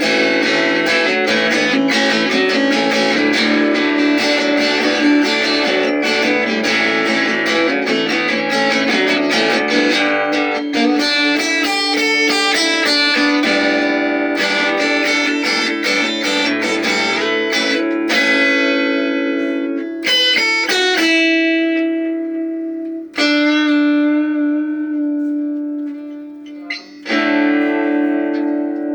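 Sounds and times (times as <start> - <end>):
plucked guitar music: 0.0 - 28.9.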